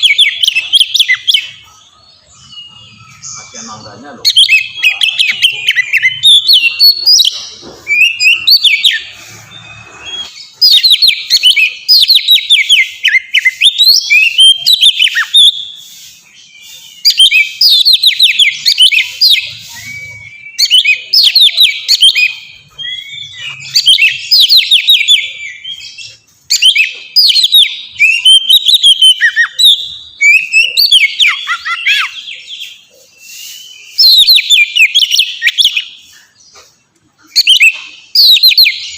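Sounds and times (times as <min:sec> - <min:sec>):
bird singing whistled notes: 0:00.0 - 0:36.7, 0:37.3 - 0:38.9.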